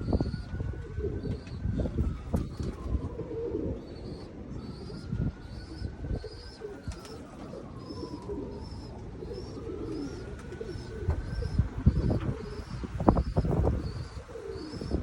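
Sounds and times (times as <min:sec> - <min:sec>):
wind on microphone: 0:00.0 - 0:07.1, 0:10.2 - 0:15.0
pigeons cooing: 0:00.0 - 0:15.0.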